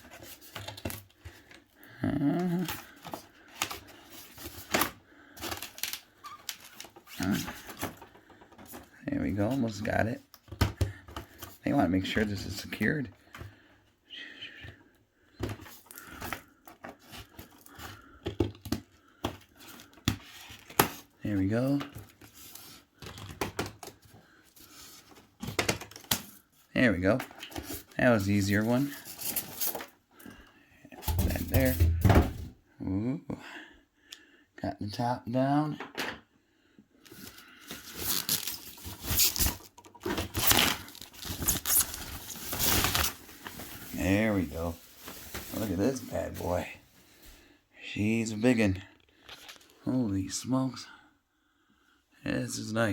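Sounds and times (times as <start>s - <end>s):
packaging rustling: 2.5s - 9.0s, 37.1s - 46.7s.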